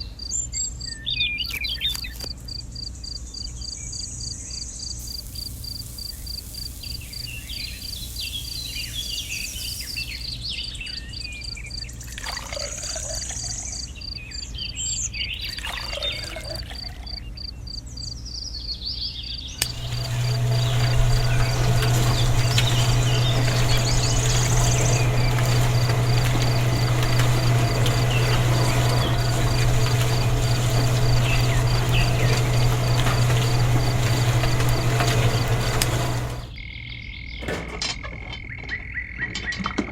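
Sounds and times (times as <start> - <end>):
insects chirping: 5.0 - 10.6, 19.6 - 37.0
low hum with hiss: 19.6 - 36.5.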